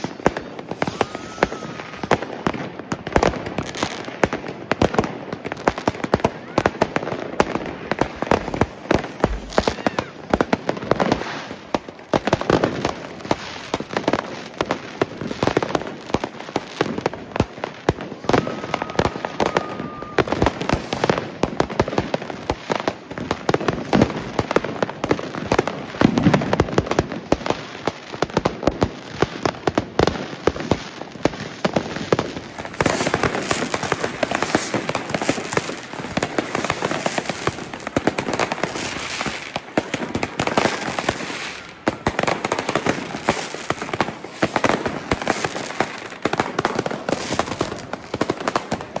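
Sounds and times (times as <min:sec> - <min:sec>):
firework whistle: 0:00.0 - 0:02.7, 0:08.3 - 0:10.4, 0:18.1 - 0:21.6
crackling hiss of fireworks: 0:00.0 - 0:49.0
firecracker and rocket bangs: 0:00.0 - 0:49.0.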